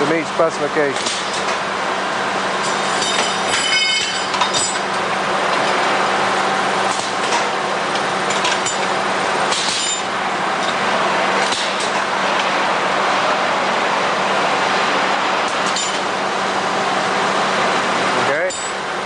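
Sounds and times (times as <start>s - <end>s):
machinery hum: 0.0s - 19.0s
metal parts clinking and ringing: 2.6s - 4.9s, 18.4s - 18.8s.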